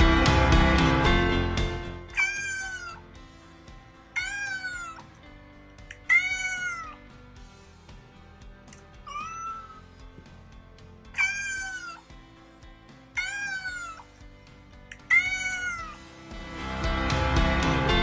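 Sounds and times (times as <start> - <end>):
faint background music: 0.0 - 18.0
cat meowing: 2.1 - 3.1, 4.1 - 5.2, 5.9 - 7.0, 8.9 - 9.9, 11.1 - 12.1, 13.1 - 14.1, 14.9 - 16.0.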